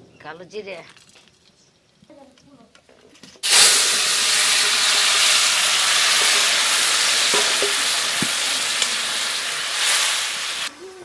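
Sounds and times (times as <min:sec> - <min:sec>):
curry sizzling in hot oil: 0:03.4 - 0:10.7
utensil knocks: 0:07.2 - 0:08.6.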